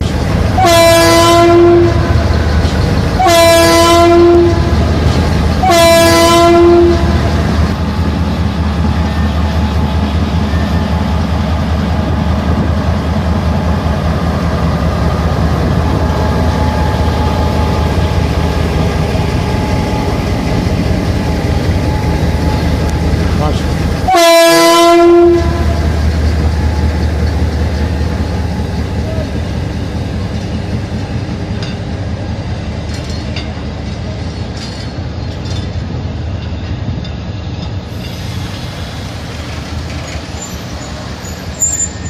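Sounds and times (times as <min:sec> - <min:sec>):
diesel locomotive horn blasts: 0:00.5 - 0:02.3, 0:03.2 - 0:04.9, 0:05.6 - 0:07.5, 0:24.0 - 0:25.9.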